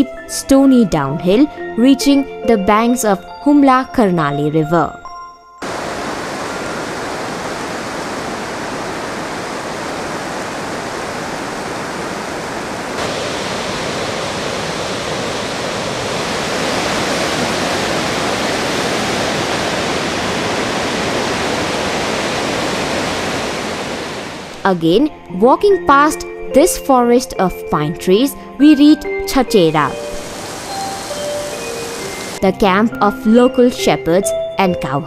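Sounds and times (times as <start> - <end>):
river water rushing: 5.6 - 24.6, 29.9 - 32.4.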